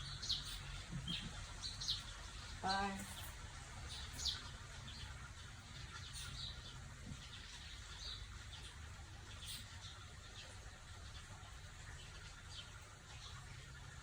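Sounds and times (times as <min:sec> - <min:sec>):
faint bird chirps: 0:00.0 - 0:05.2, 0:05.8 - 0:11.3
low steady hum: 0:00.0 - 0:14.0.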